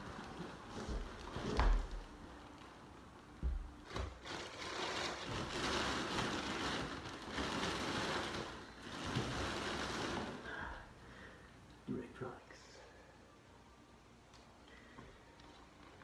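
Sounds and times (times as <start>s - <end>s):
packaging rustling and scraping: 0.0s - 2.7s, 3.8s - 10.5s.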